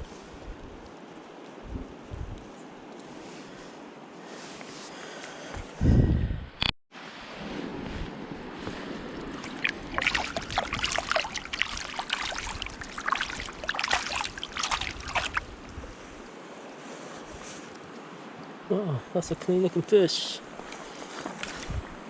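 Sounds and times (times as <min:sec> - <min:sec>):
steady wash of water: 0:07.0 - 0:16.9
fish splashing at surface: 0:09.3 - 0:15.5.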